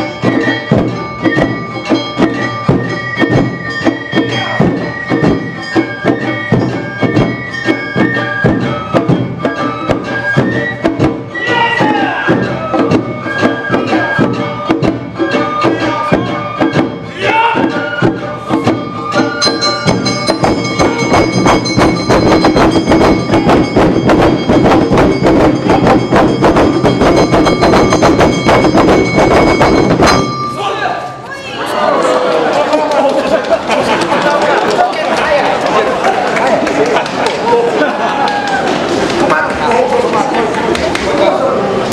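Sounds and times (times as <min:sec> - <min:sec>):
drums and gong beat: 0:00.0 - 0:31.3
high bamboo flute melody: 0:00.0 - 0:31.6.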